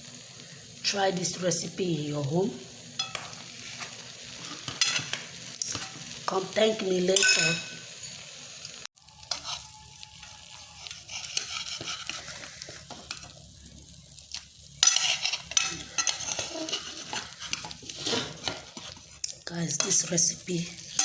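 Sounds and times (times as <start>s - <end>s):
food sizzling in a pan: 0.0s - 21.0s
utensil scraping a pan: 9.3s - 13.3s, 14.8s - 20.1s, 20.7s - 21.0s.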